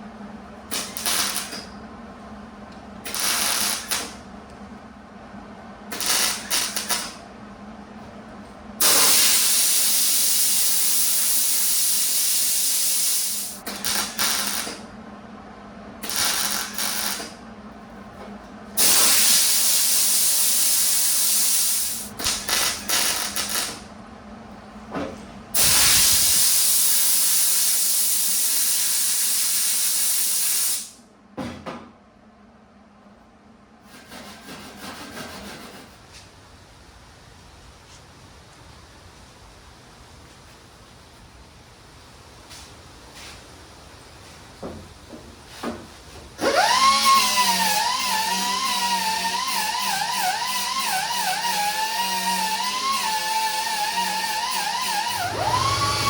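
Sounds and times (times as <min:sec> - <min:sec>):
welding hiss: 0:00.7 - 0:01.6, 0:03.1 - 0:04.2, 0:05.9 - 0:07.2, 0:08.8 - 0:14.8, 0:16.0 - 0:17.4, 0:18.8 - 0:23.8, 0:25.6 - 0:31.0, 0:47.0 - 0:55.8.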